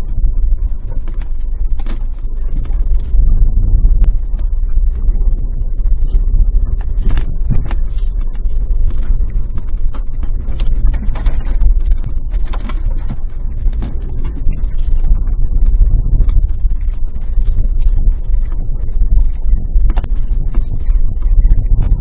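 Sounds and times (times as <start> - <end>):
body rattles and stones ticking: 0.0 - 22.0
car engine and road rumble: 0.0 - 22.0.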